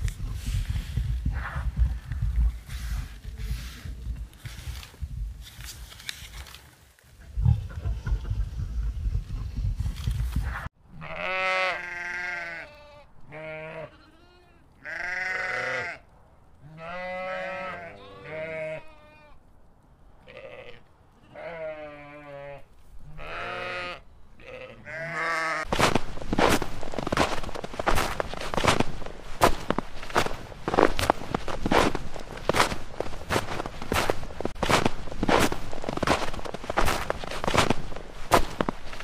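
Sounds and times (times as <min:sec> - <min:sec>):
sheep bleating: 0:10.9 - 0:16.0, 0:16.6 - 0:19.4, 0:20.2 - 0:25.7.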